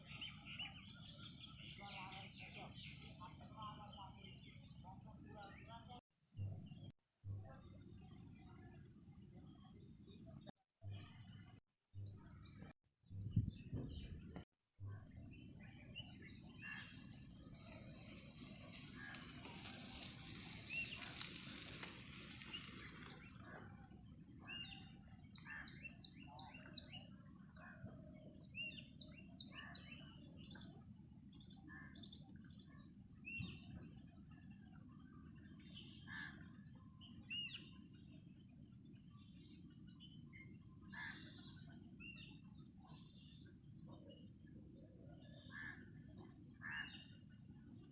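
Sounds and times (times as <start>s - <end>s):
insects trilling: 15.0s - 47.9s.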